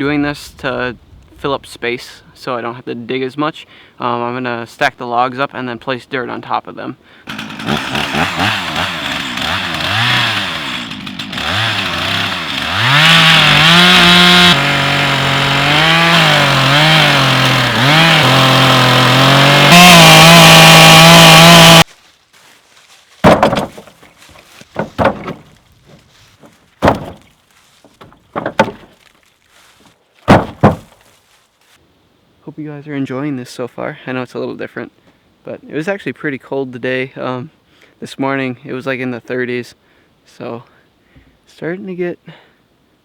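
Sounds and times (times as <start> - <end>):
chainsaw cutting log: 7.3 - 21.9, 23.2 - 27.3, 27.9 - 29.1, 30.3 - 31.0
knocks: 23.2 - 24.0, 24.7 - 25.5, 26.4 - 27.3, 28.0 - 28.9, 30.3 - 31.0.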